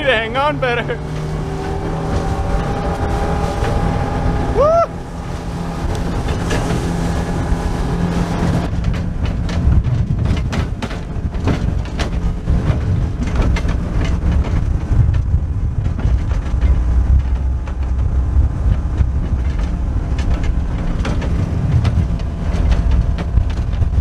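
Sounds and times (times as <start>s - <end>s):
hull slapping over chop: 0.0s - 24.0s
motorboat engine hum: 0.0s - 24.0s
rumble of wind and water: 0.0s - 24.0s.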